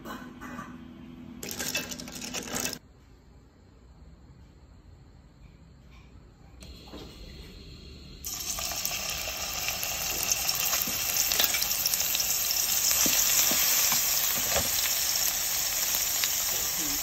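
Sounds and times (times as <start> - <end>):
paste sizzling in hot oil: 6.9 - 17.0.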